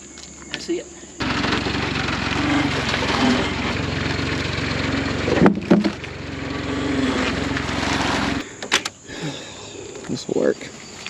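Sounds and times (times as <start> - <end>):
tractor running: 1.2 - 8.4
sharp knocks: 5.3 - 6.0.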